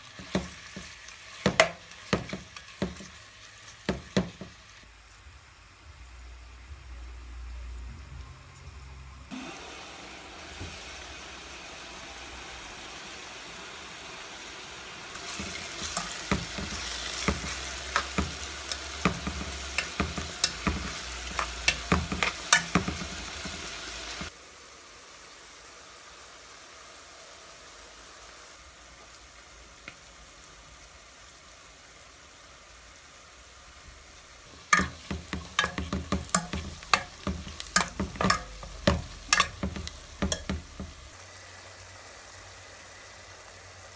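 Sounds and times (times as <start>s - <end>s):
spoon knocking and scraping pan: 0.0s - 3.2s, 3.8s - 4.6s, 15.1s - 24.3s, 34.5s - 41.2s
meat sizzling in a pan: 0.0s - 6.4s, 9.3s - 43.9s.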